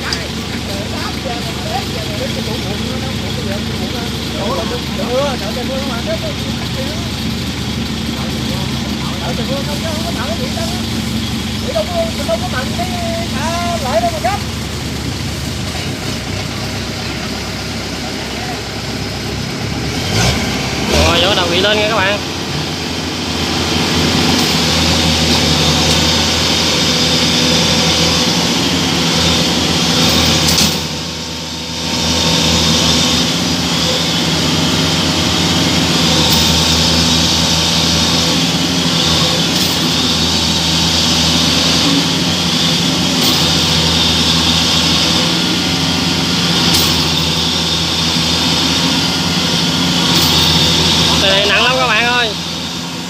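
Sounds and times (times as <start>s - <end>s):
diesel engines under heavy load: 0.0s - 53.0s.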